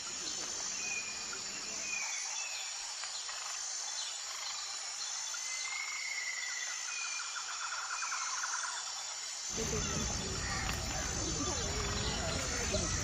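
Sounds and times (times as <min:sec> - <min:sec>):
high insect chorus: 0:00.0 - 0:13.0.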